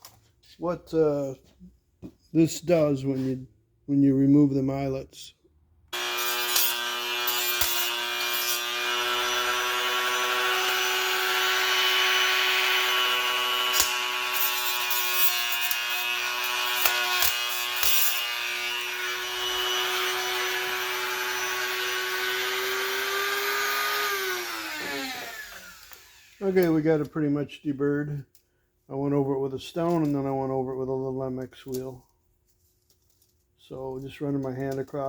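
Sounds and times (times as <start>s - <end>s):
grinding on metal: 6.0s - 26.4s
die grinder whining: 6.0s - 26.7s.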